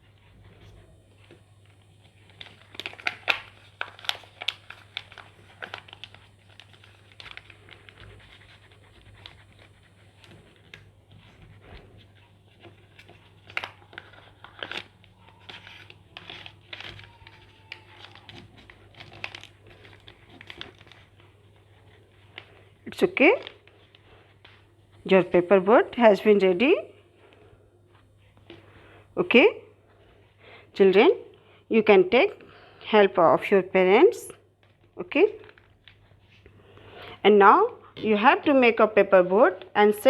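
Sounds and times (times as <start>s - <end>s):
paper crinkling and rustling: 0.0s - 29.0s, 34.5s - 37.0s
faint low hum: 0.0s - 40.0s.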